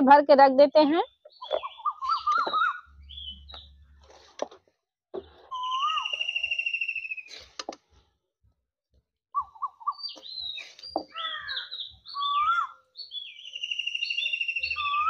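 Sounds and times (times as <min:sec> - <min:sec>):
bird chirps and whistled calls: 0:01.0 - 0:03.8, 0:05.5 - 0:07.6, 0:09.4 - 0:15.0
songbird trill: 0:01.1 - 0:03.9, 0:05.5 - 0:07.5, 0:09.4 - 0:15.0.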